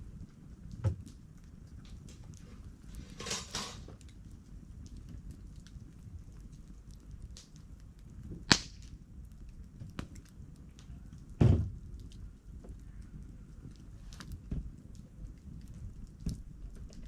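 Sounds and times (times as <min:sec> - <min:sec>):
campfire crackling: 0:00.0 - 0:17.0
low steady rumble: 0:00.0 - 0:17.0
dull thump: 0:11.4 - 0:11.7.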